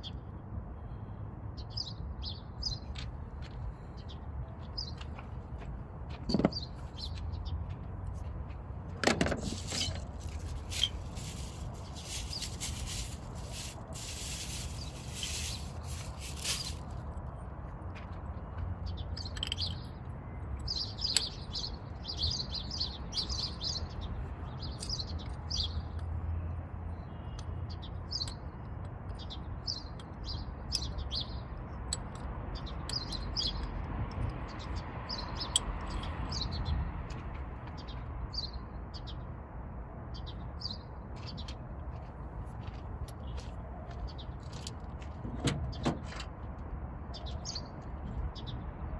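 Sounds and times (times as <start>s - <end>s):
small birds chirping: 1.6s - 8.5s, 9.4s - 17.2s, 18.4s - 39.3s.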